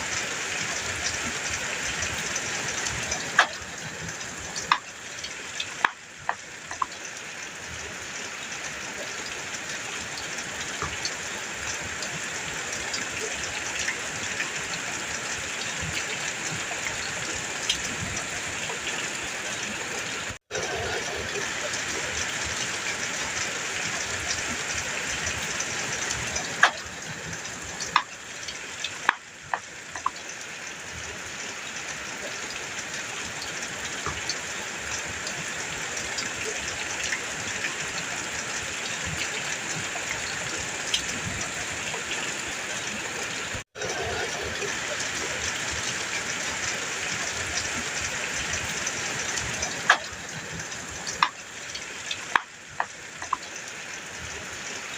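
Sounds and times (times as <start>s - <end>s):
heavy rain on a metal roof: 0.0s - 54.9s.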